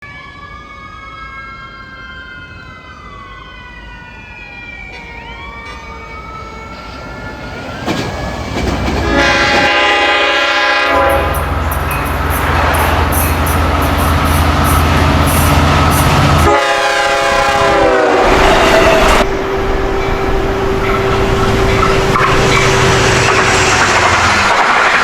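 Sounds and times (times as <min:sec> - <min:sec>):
electric train whining: 0:00.2 - 0:25.0
train passing rumble: 0:03.0 - 0:25.0
train horn blast: 0:09.0 - 0:24.2.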